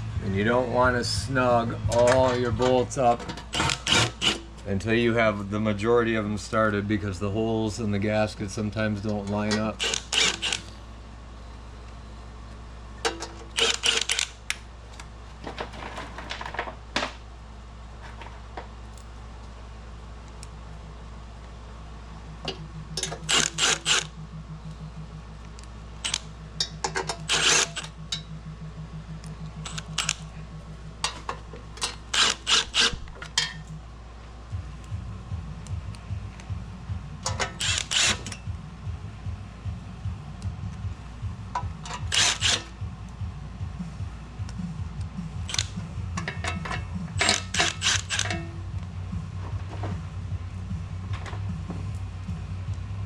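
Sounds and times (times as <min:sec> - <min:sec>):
steady low hum: 0:00.0 - 0:53.0
metallic clicking and rattling tools: 0:09.1 - 0:10.7, 0:13.0 - 0:14.3, 0:22.5 - 0:24.1, 0:26.0 - 0:28.3, 0:29.6 - 0:30.3, 0:31.0 - 0:33.8, 0:37.2 - 0:38.5, 0:41.6 - 0:42.7, 0:45.4 - 0:48.5.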